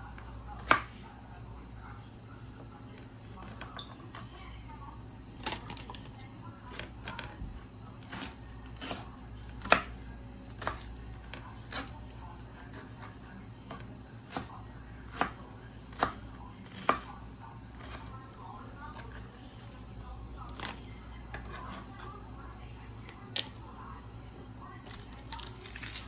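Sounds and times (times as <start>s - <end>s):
knife chopping on cutting board: 0.6s - 1.0s, 8.0s - 9.9s, 10.5s - 11.0s, 12.6s - 18.2s.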